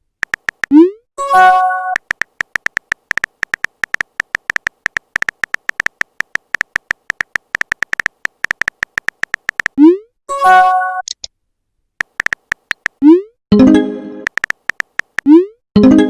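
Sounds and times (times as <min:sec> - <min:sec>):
phone keyboard tapping clicks: 0:00.2 - 0:00.9, 0:01.5 - 0:09.8, 0:12.0 - 0:13.0, 0:14.3 - 0:15.3.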